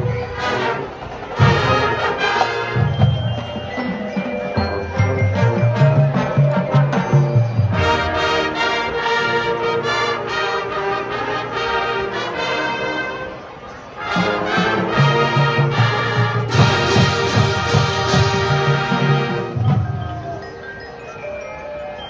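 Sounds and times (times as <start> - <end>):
marching band brass music: 0.0 - 20.8.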